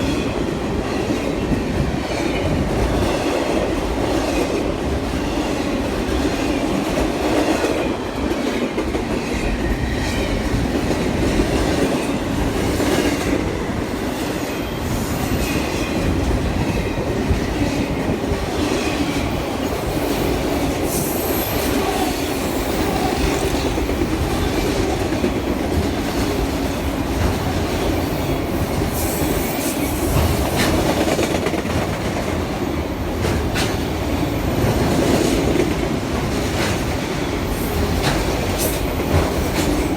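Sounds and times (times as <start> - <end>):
railroad cars rumbling: 0.0 - 39.9
wheels clickety-clack over rails: 15.4 - 39.9.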